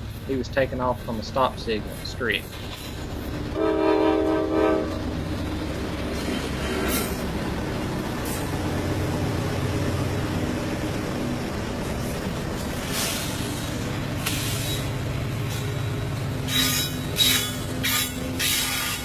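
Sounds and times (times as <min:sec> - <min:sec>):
diesel locomotive engines rumbling: 0:00.0 - 0:19.0
locomotive horn blast: 0:03.5 - 0:05.0, 0:16.5 - 0:19.0.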